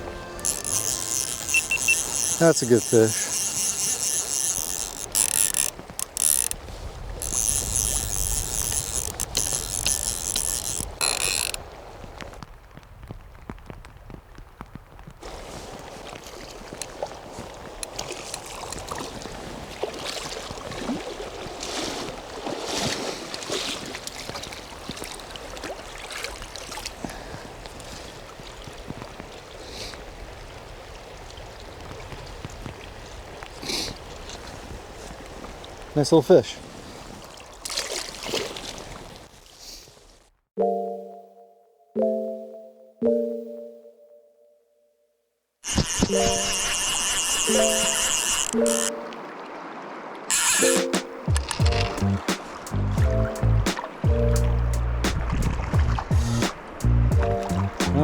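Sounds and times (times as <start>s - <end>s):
running river water: 0.0s - 40.2s, 45.6s - 58.0s
fly reel ratchet clicking: 0.4s - 6.6s, 7.2s - 11.6s, 45.6s - 48.9s, 50.3s - 52.0s.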